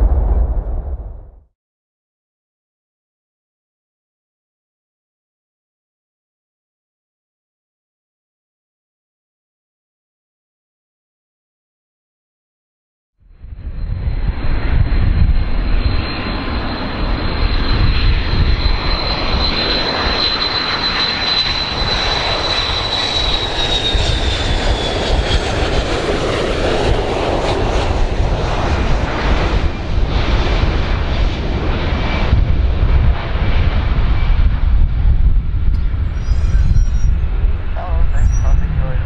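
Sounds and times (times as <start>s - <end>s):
airliner engines rumbling and whining: 0.0s - 1.4s, 13.3s - 39.0s.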